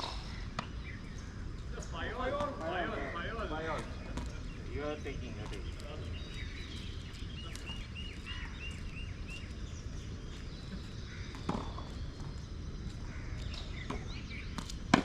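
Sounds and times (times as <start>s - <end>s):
bird chirping: 0.0s - 15.0s
low background noise: 0.0s - 15.0s
tennis ball struck by racquet: 13.8s - 15.0s.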